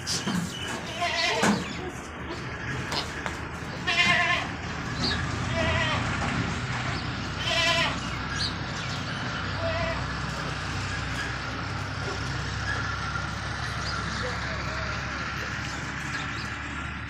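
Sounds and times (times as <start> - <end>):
goats bleating: 0.7 - 2.0, 2.7 - 8.2, 9.5 - 12.8.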